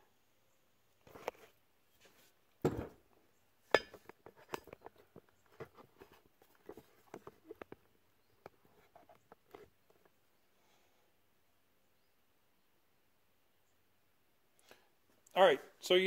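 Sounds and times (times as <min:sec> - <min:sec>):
light metal clinks and taps: 0:03.7 - 0:04.8.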